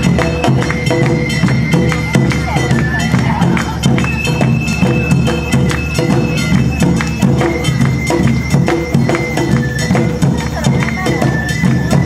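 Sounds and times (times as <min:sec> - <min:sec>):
bamboo flute high notes: 0:00.0 - 0:12.0
drums beating: 0:00.0 - 0:12.0.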